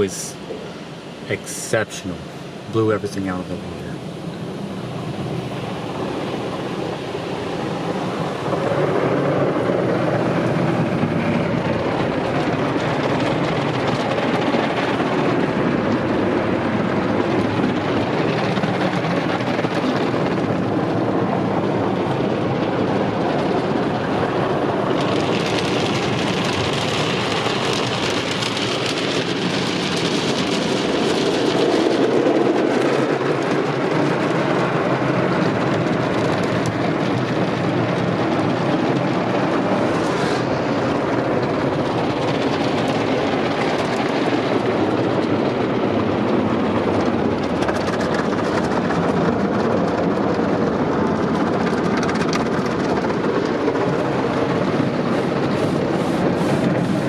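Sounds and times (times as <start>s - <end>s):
car wash spraying water: 0.0s - 48.8s, 49.4s - 57.0s
brushes scrubbing car body: 55.1s - 57.0s.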